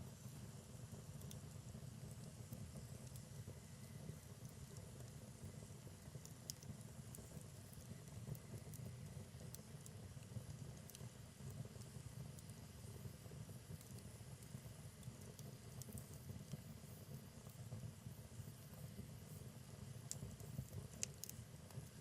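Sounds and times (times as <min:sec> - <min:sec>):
rumble of fire flames: 0:00.0 - 0:22.0
logs crackling and popping: 0:20.0 - 0:22.0.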